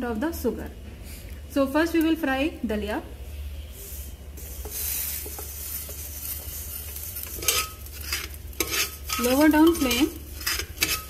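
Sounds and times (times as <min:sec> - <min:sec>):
wheat sizzling in ghee: 0:03.5 - 0:11.0
metal spoon scraping pot: 0:04.6 - 0:11.0.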